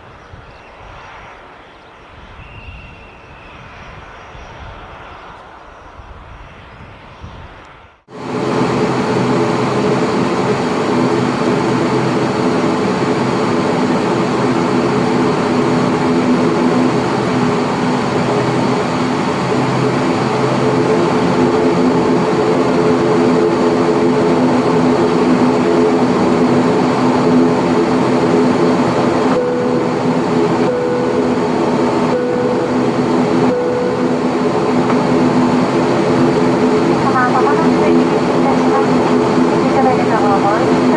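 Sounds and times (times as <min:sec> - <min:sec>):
distant aircraft engine: 0:00.0 - 0:40.9
turboprop engine cabin drone: 0:00.0 - 0:40.9
faint high tone: 0:32.1 - 0:34.5.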